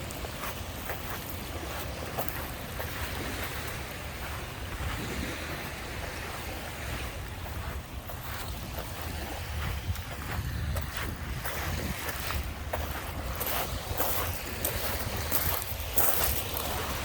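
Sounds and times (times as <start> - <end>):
waves washing onto beach: 0.0 - 17.0
wind rumbling on microphone: 0.0 - 17.0.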